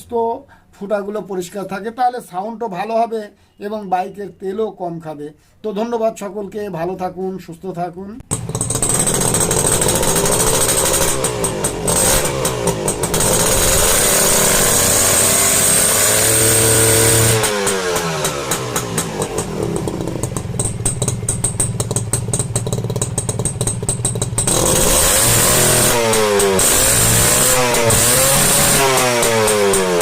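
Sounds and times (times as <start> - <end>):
motorcycle engine revving and idling: 8.2 - 30.0.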